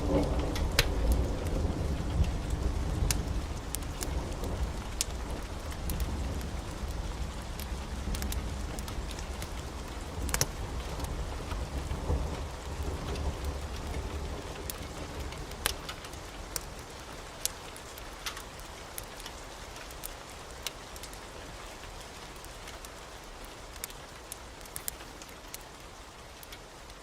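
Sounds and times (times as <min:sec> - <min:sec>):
low thunder rumble: 0:00.0 - 0:16.8
heavy rain hiss: 0:00.0 - 0:27.0.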